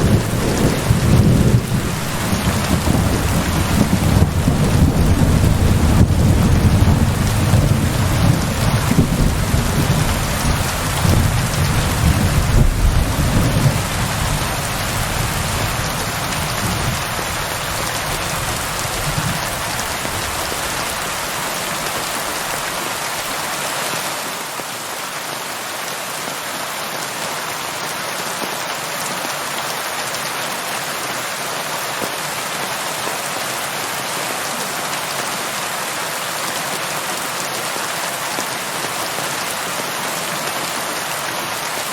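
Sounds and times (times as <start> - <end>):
rolling thunder rumble: 0.0 - 20.6
heavy rain: 0.0 - 41.9.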